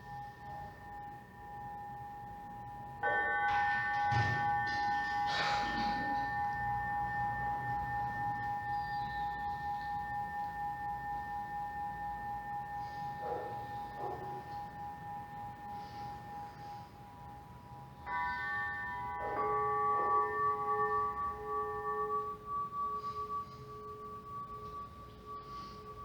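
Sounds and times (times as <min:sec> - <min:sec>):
singing bowls ringing: 0:00.0 - 0:26.0.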